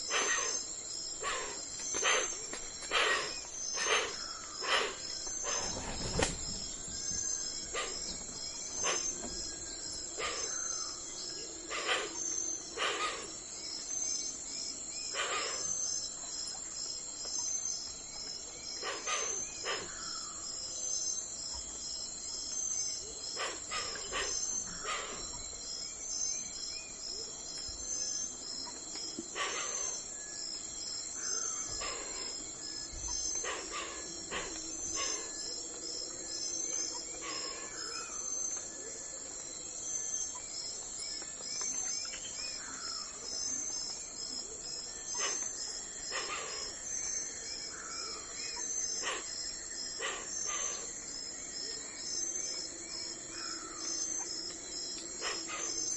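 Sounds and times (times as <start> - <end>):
birds calling: 0.0 - 14.4, 17.4 - 21.8, 22.4 - 38.9
insects trilling: 0.0 - 55.9.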